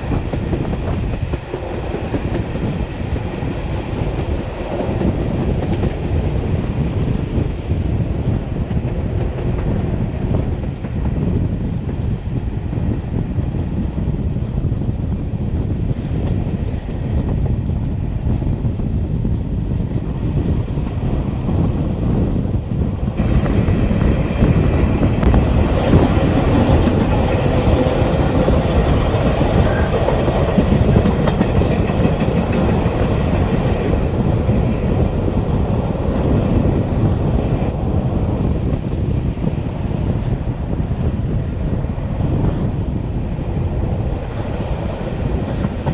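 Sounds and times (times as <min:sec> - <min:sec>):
wind noise: 0:00.0 - 0:45.9
train wheels clattering on rails: 0:23.2 - 0:37.7.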